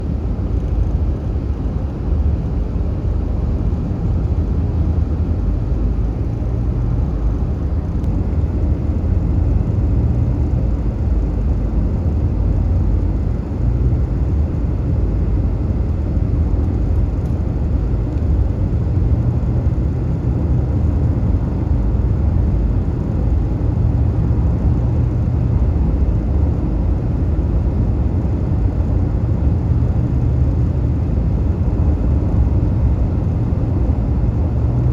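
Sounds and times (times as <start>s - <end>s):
fire engine engine rumble: 0.0s - 34.9s.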